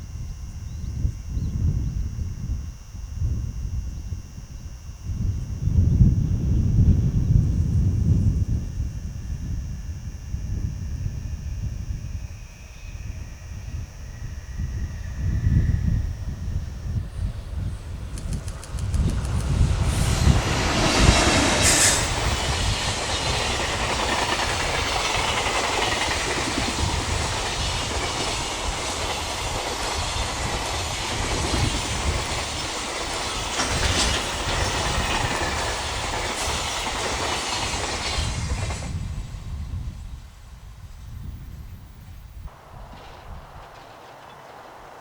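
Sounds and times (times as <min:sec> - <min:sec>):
freight train passing: 0:12.1 - 0:45.0
wheels clattering over rail joints: 0:42.6 - 0:45.0.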